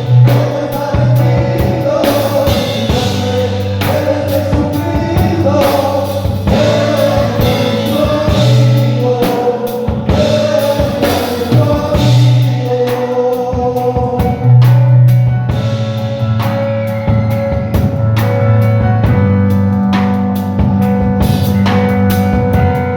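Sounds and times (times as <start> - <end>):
voices singing along: 0.0 - 15.0
band with drums and bass: 0.0 - 22.9.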